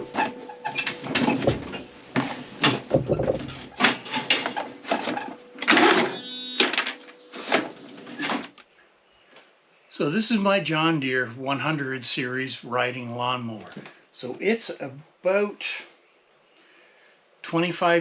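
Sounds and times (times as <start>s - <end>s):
knocks clunks and rattles: 0.0s - 8.6s.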